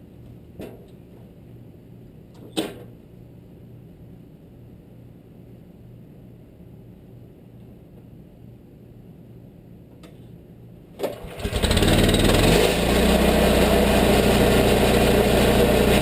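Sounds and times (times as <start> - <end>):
stump grinder engine idling: 11.4 - 16.0.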